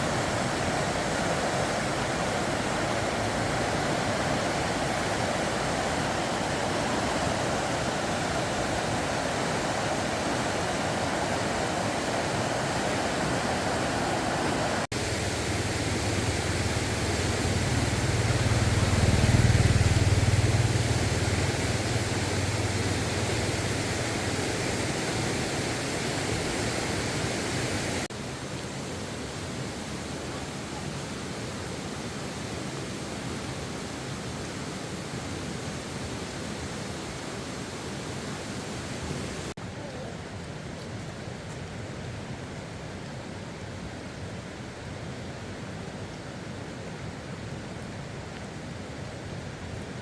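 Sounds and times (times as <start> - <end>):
rain hissing: 0.0 - 28.1
low rumble: 15.9 - 23.3.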